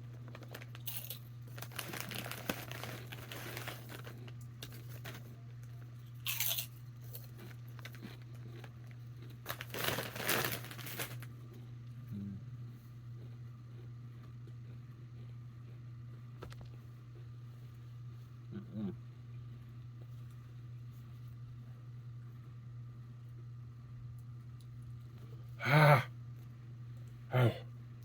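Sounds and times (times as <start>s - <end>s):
chip bag crinkling: 0.0s - 11.4s
steady low hum: 0.0s - 28.0s.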